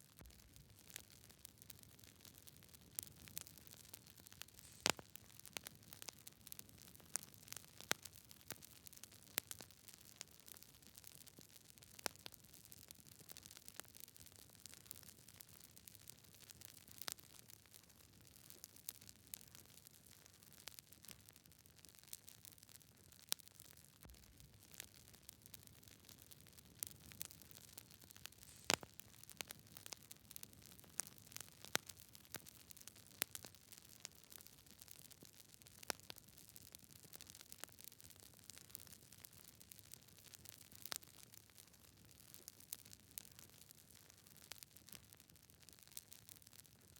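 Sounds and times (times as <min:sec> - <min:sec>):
faint steady hiss: 0:00.0 - 0:13.8, 0:14.4 - 0:37.6
campfire crackling: 0:00.0 - 0:46.7
sharp pops of burning wood: 0:00.2 - 0:09.7, 0:23.7 - 0:34.5
soft hiss: 0:04.3 - 0:05.4, 0:28.2 - 0:29.5.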